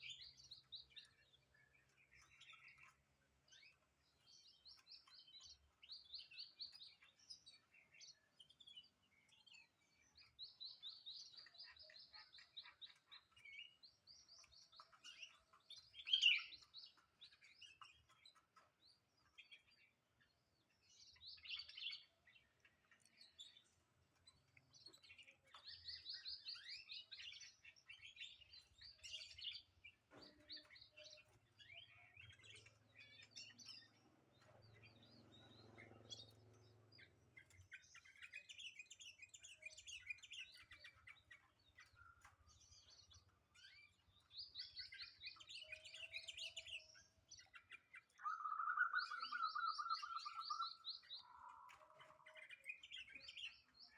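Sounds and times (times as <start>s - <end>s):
bird twittering song: 0.0s - 53.9s
lower bird trill: 10.2s - 18.1s, 24.3s - 53.9s.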